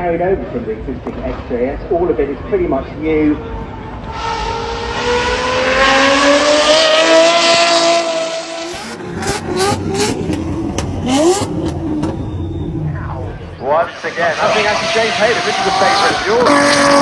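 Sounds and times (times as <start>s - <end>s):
car engine accelerating hard: 3.9s - 17.0s
exhaust cracks: 8.5s - 17.0s.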